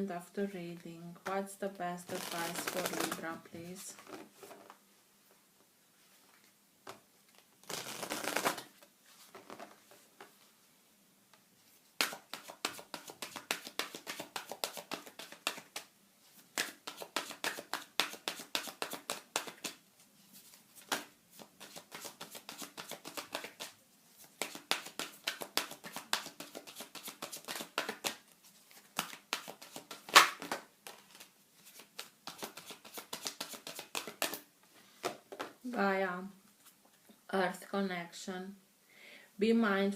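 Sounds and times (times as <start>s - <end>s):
cards being shuffled: 2.1s - 4.8s, 6.9s - 10.4s, 12.0s - 15.9s, 16.5s - 19.8s, 20.4s - 35.6s.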